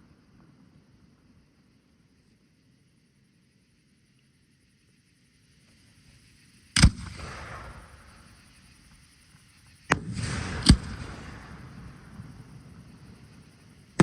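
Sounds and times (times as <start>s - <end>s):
fireworks bangs: 9.9s - 12.8s.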